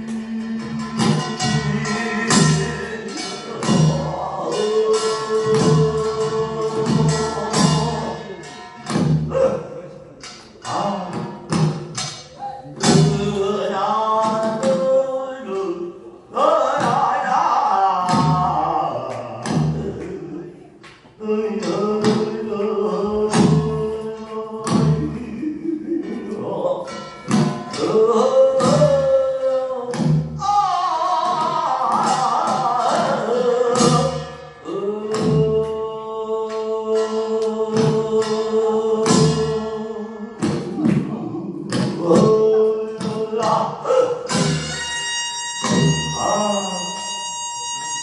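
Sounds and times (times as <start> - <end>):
folk singing with ornamented melody: 0.0 - 9.4, 12.8 - 47.9
sharp drum strikes: 8.8 - 9.5.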